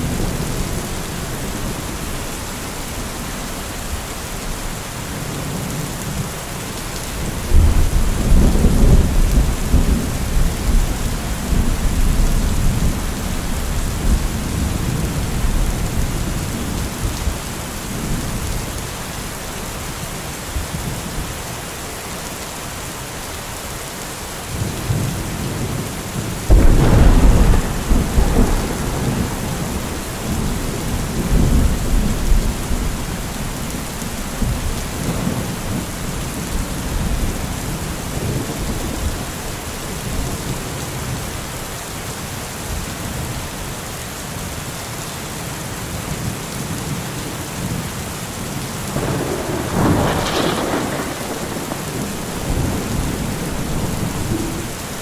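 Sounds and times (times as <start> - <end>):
heavy rain falling: 0.0 - 55.0
thunder rumbling: 7.2 - 18.6, 26.5 - 40.6, 48.9 - 55.0.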